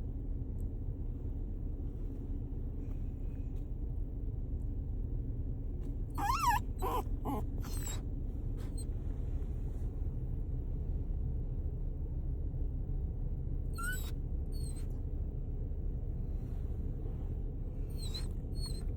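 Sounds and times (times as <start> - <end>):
dog whining chirps: 6.2 - 8.0, 13.8 - 14.9, 17.8 - 18.9.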